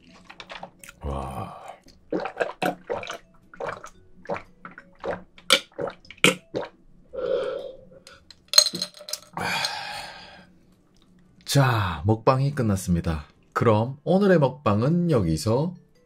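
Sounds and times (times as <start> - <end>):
person gulping water: 0.0 - 7.5
breathy exhale: 7.2 - 8.1, 9.4 - 10.6.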